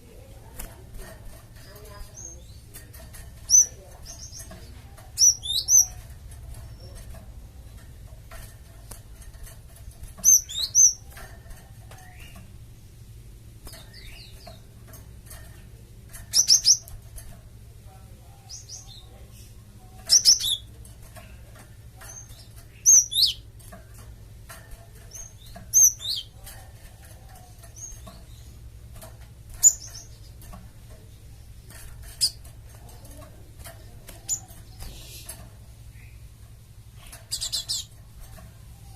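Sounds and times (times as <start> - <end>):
steady low hum: 0.0 - 38.9
bird chirping: 1.6 - 7.1, 10.0 - 12.5, 15.4 - 17.2, 18.2 - 24.1, 24.7 - 26.4, 27.2 - 38.9.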